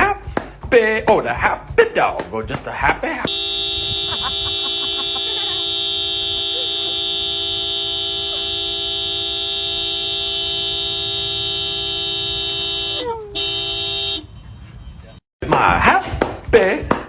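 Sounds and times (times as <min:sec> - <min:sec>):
steady horn-like tone: 0:03.3 - 0:15.2.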